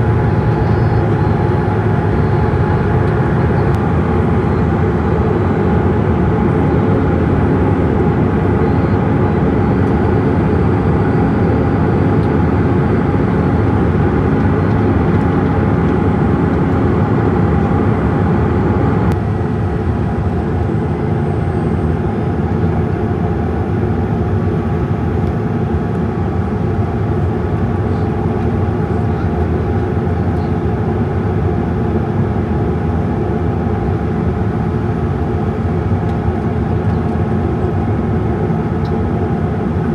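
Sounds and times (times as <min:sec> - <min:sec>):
jet engine cabin drone: 0:00.0 - 0:39.9.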